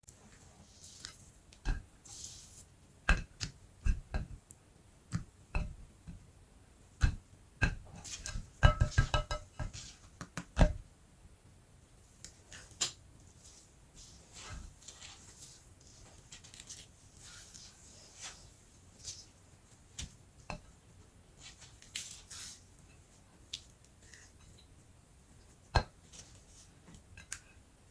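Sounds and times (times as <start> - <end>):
objects tapping and knocking: 1.0 - 2.0, 3.0 - 4.5, 5.1 - 6.3, 7.0 - 10.9, 20.0 - 20.8, 25.7 - 27.6.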